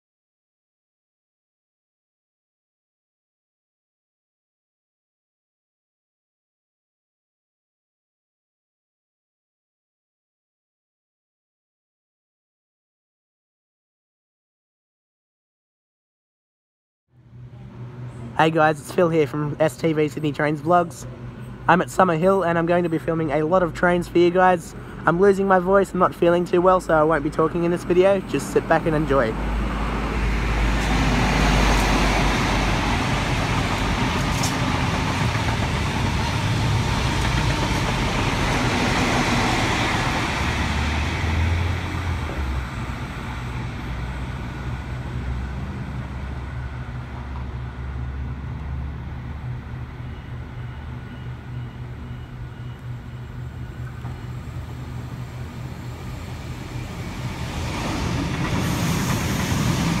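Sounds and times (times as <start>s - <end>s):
rail and traffic noise: 17.1s - 60.0s
electric train running in: 17.3s - 60.0s
loud vehicle rumble: 26.7s - 60.0s.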